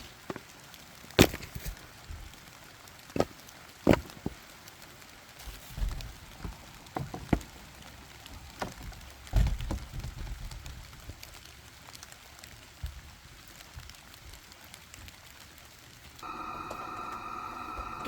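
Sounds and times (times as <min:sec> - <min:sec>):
light rain pattering: 0:00.0 - 0:18.0
sharp knocks and dull thumps: 0:08.3 - 0:11.0.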